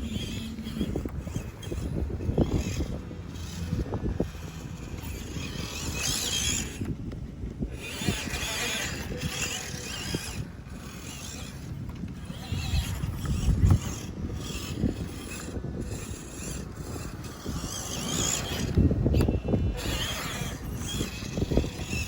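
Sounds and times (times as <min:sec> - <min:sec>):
electric motor and gears whining: 0:00.0 - 0:22.0.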